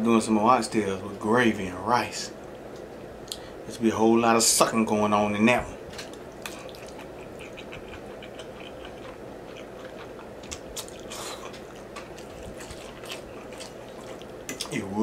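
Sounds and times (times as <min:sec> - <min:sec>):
person chewing wet mouth clicks: 0:06.0 - 0:14.8.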